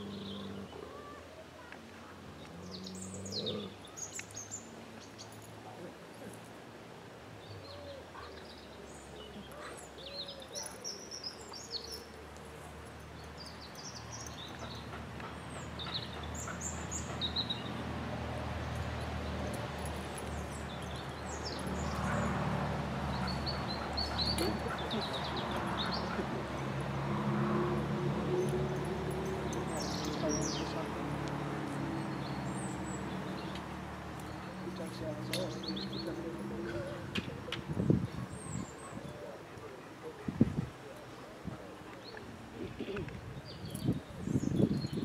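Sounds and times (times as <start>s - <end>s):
songbirds chirping: 0.0s - 45.0s.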